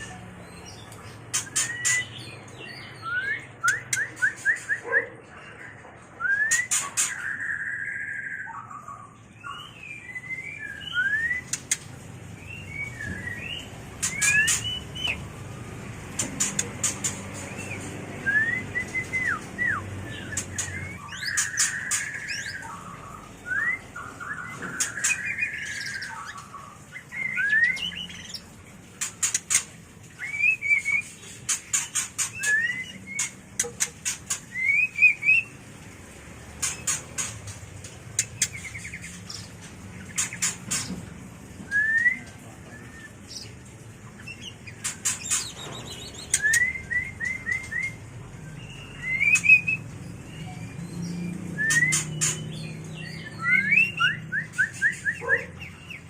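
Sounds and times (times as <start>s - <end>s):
bird whistling calls: 1.3s - 5.1s, 6.2s - 11.7s, 12.4s - 15.2s, 16.4s - 28.4s, 30.2s - 35.6s, 41.6s - 43.5s, 44.3s - 55.6s.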